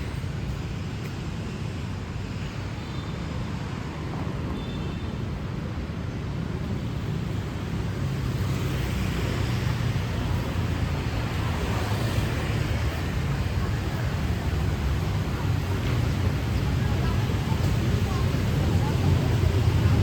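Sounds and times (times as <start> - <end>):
rumble of passing vehicles: 0.0 - 20.0.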